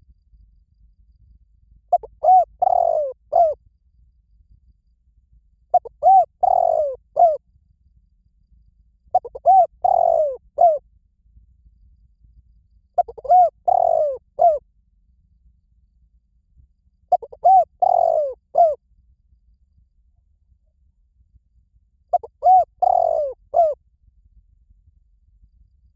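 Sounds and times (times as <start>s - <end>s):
dove cooing: 1.9s - 3.6s, 5.7s - 7.4s, 9.1s - 10.8s, 13.0s - 14.6s, 17.1s - 18.8s, 22.1s - 23.8s.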